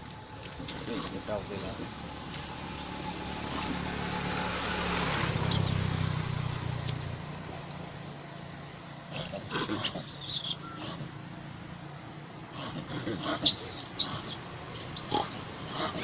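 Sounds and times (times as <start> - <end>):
motor vehicle hum: 0.0 - 16.0
monkeys squealing: 2.8 - 5.9, 9.0 - 11.1, 12.6 - 16.0.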